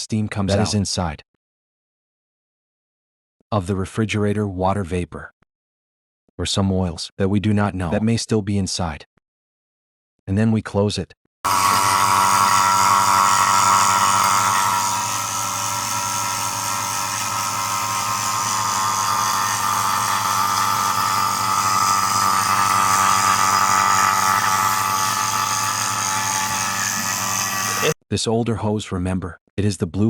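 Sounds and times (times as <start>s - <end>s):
vacuum pump humming and whining: 11.5s - 28.0s.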